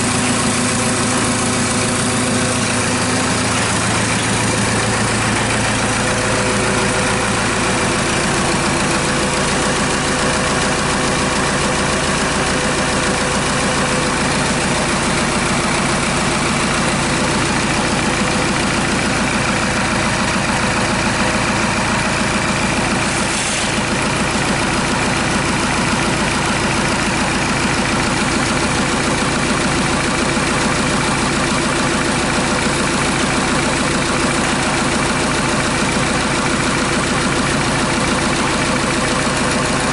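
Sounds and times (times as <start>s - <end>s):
diesel engine idling: 0.0s - 39.9s
brief hiss: 23.3s - 23.8s.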